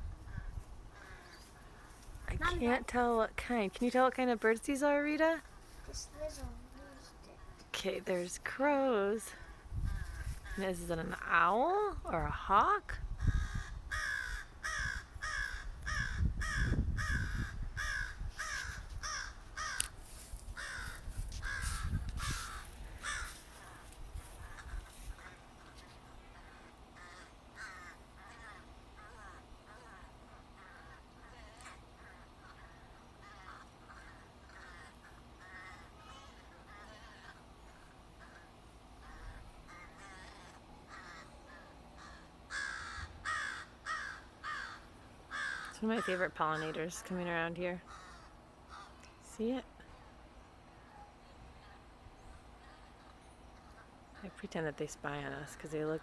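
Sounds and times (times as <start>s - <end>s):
crows cawing harshly: 0.2s - 2.1s, 13.2s - 46.7s, 47.9s - 49.0s.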